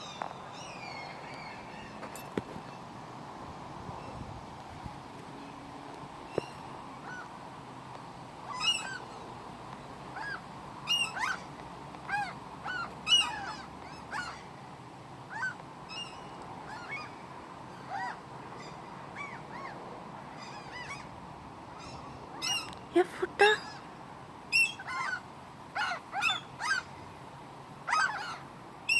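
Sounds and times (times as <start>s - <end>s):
seagulls calling: 6.3s - 7.4s, 8.5s - 9.2s, 10.2s - 14.6s, 15.3s - 23.9s, 24.5s - 27.0s, 27.8s - 28.9s.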